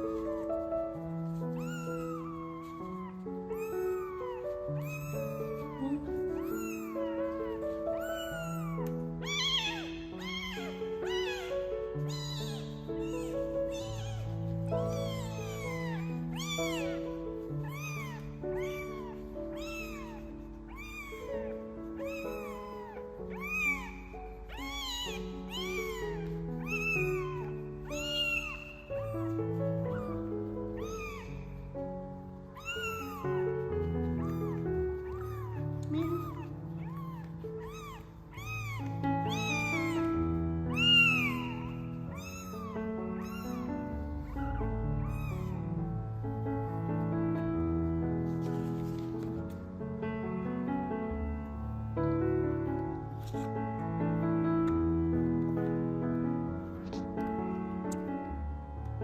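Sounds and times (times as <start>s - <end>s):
kitten meowing: 0.0s - 46.0s
background music with held notes: 0.0s - 59.0s.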